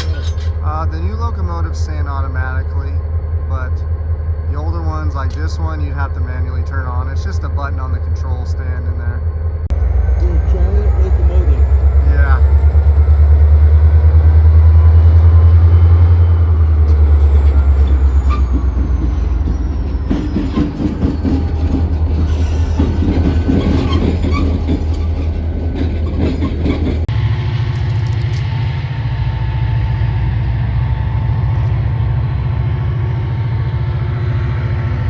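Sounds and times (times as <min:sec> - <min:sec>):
locomotive engine rumble: 0:00.0 - 0:35.0
steady low hum: 0:00.0 - 0:35.0
train wheels clanking on rails: 0:16.6 - 0:31.8.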